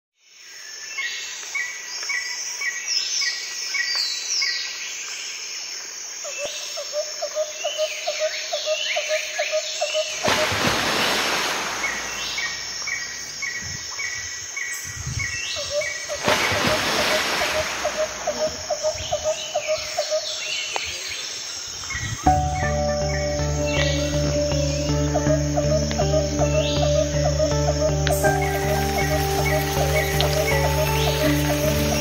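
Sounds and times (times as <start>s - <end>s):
birds chirping and whistling: 21.9s - 32.0s.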